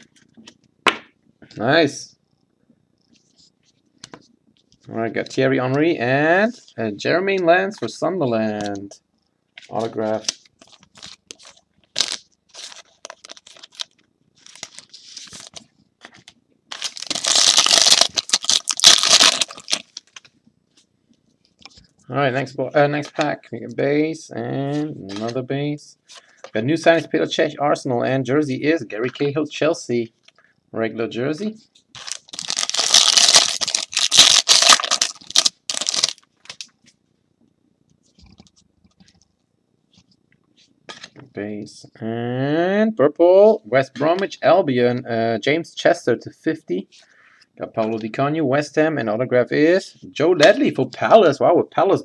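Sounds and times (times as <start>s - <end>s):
card wrapper rustling: 9.6s - 20.3s, 31.9s - 36.7s
wrapper tearing open: 10.6s - 15.5s, 16.7s - 20.2s, 32.0s - 36.7s.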